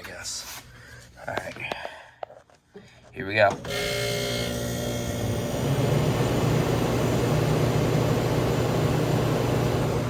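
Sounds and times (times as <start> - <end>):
air conditioner running: 2.8 - 10.0.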